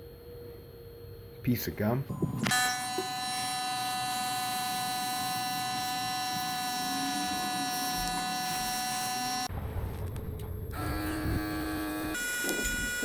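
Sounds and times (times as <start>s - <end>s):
small electric motor whining: 2.1s - 9.5s, 10.7s - 13.0s.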